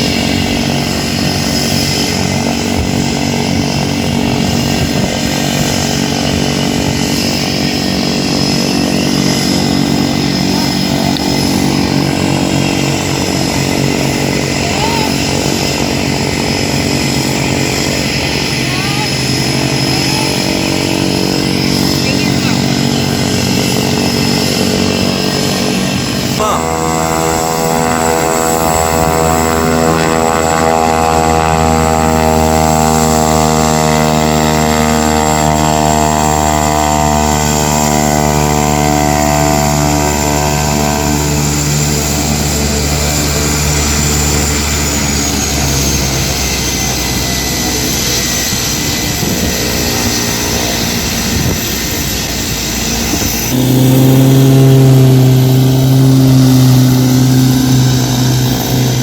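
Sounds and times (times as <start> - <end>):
high whine: 0.0 - 59.0
propeller engine running: 0.0 - 59.0
low steady hum: 21.0 - 32.6, 53.5 - 59.0.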